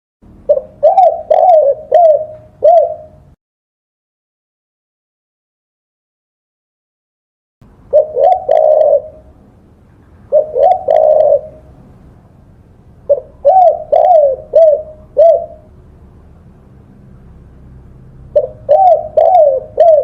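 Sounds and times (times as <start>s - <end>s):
dove cooing: 0.4s - 3.4s, 7.9s - 9.4s, 10.2s - 11.9s, 13.0s - 15.8s, 18.3s - 20.0s.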